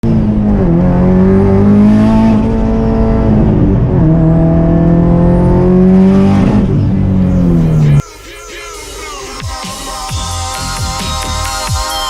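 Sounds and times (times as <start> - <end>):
car engine accelerating hard: 0.0 - 8.0.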